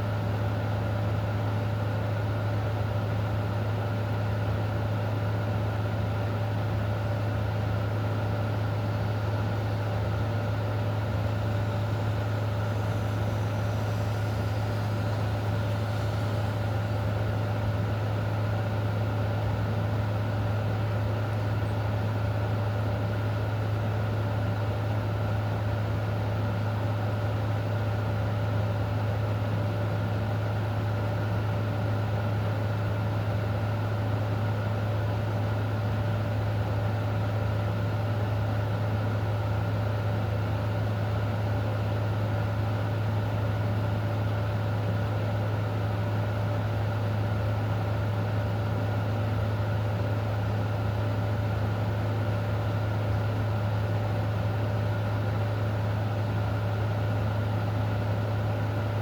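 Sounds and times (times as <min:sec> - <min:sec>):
low mechanical hum: 0:00.0 - 0:59.0.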